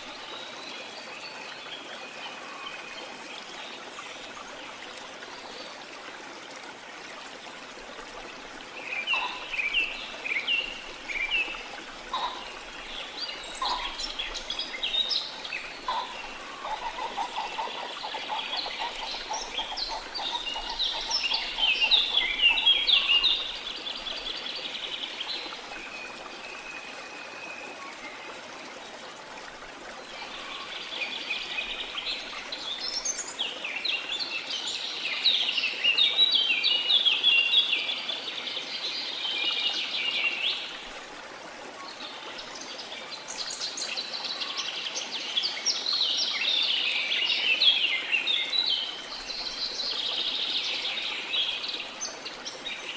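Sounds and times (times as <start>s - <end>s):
songbirds chirping: 8.1s - 40.9s.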